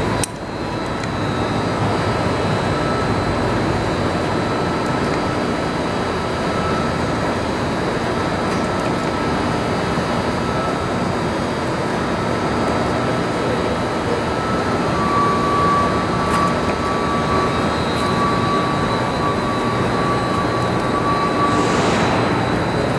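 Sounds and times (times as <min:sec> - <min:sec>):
high machine whine: 0:09.4 - 0:22.9
industrial machinery roar: 0:11.5 - 0:22.9.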